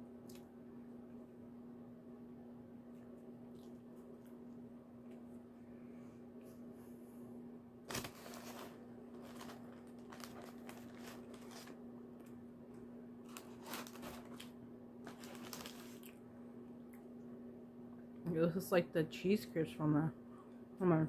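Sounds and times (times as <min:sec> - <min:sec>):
steady low hum: 0:00.0 - 0:21.0
chewing a sandwich: 0:02.8 - 0:05.6, 0:15.1 - 0:17.1.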